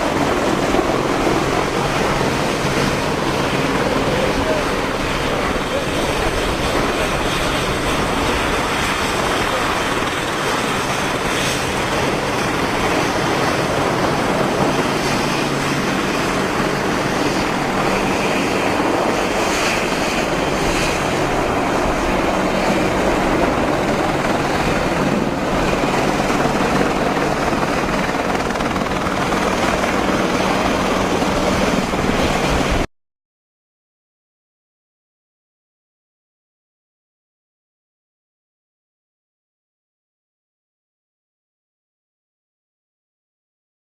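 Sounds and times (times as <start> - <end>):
helicopter rotor and engine: 0.0 - 32.9.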